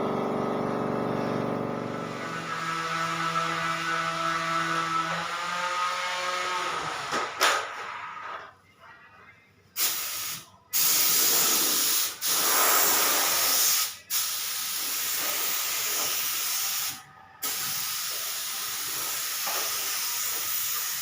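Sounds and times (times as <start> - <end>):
spray gun hissing: 9.8 - 21.0.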